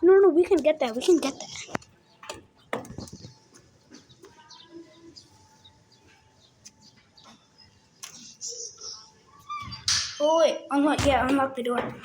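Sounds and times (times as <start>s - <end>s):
faint bird chirps: 2.9s - 9.9s.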